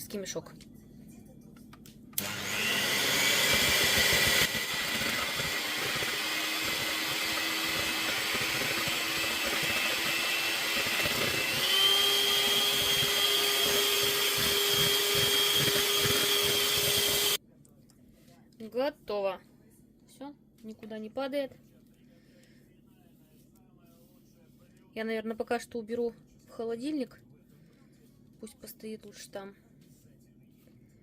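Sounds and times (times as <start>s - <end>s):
electric mixer motor whine: 2.2s - 17.4s.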